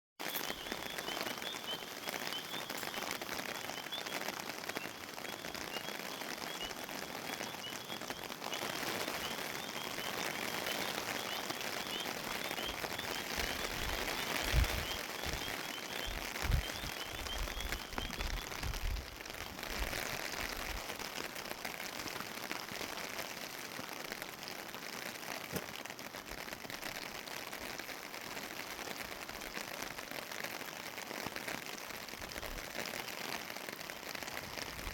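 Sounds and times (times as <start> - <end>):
faint high chirps: 0.2 - 19.6
steady rain: 0.2 - 34.9.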